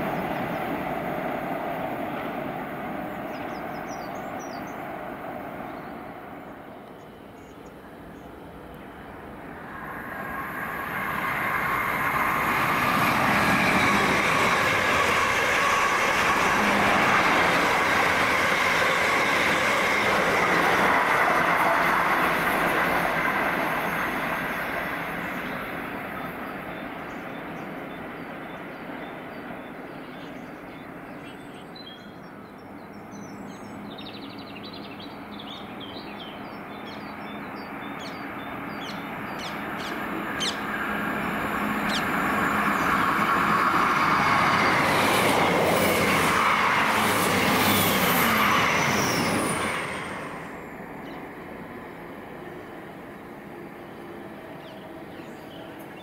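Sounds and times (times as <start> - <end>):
train passing: 0.0 - 56.0.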